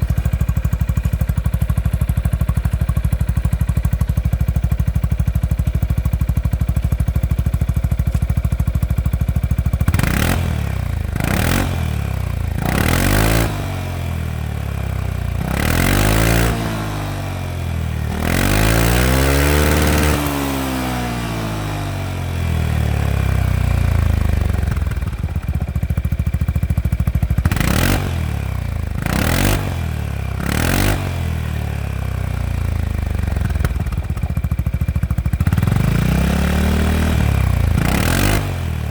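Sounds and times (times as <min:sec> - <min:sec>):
scooter engine idling and revving: 0:00.0 - 0:38.9.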